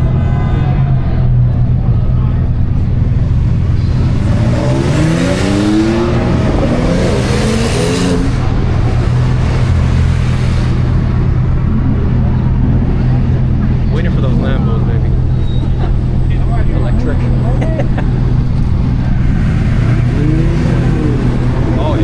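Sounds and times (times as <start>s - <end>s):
low engine hum: 0.0s - 22.0s
car engine revving past: 3.0s - 11.6s, 18.1s - 22.0s.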